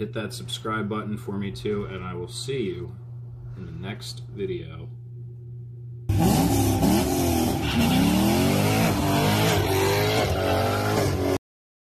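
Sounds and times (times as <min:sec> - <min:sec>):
low steady hum: 0:00.0 - 0:06.1
car engine accelerating: 0:06.1 - 0:11.4.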